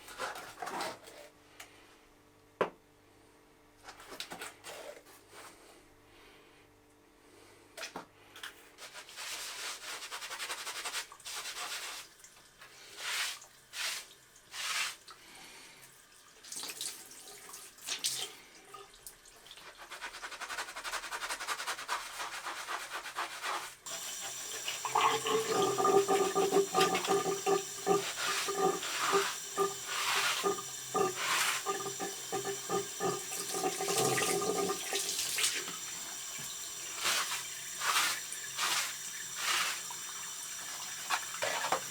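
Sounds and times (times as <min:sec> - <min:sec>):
splashing and rubbing: 0:19.6 - 0:35.8, 0:36.9 - 0:40.0
water running from a tap: 0:23.8 - 0:41.9.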